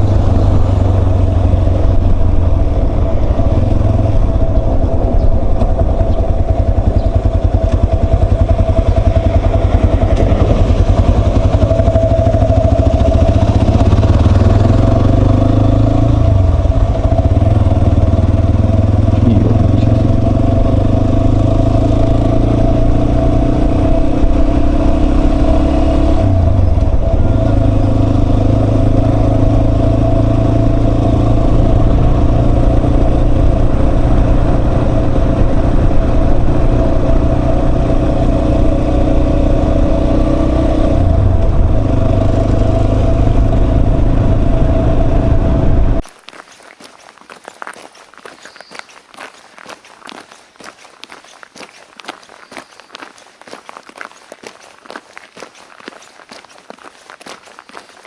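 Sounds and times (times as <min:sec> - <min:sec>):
motorcycle engine running: 0:00.0 - 0:46.0.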